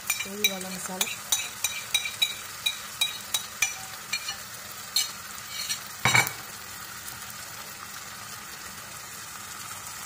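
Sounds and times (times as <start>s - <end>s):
chicken sizzling in hot oil: 0.0s - 10.0s
bowl knocking on pan: 6.0s - 6.5s.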